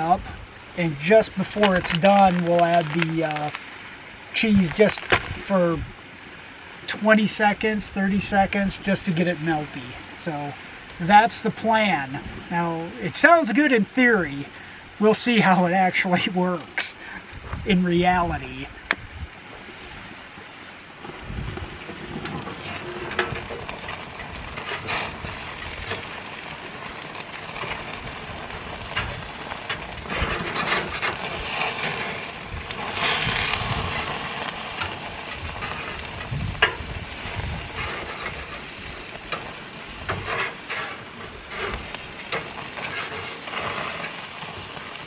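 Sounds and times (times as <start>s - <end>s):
patties sizzling on a grill: 0.0s - 18.8s, 20.9s - 45.0s
fat clicks and pops: 4.8s - 5.5s.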